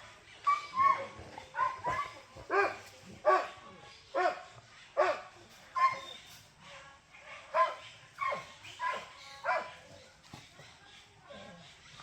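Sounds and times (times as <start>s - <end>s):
dog barking: 1.6s - 3.6s, 5.0s - 5.2s, 7.5s - 9.8s.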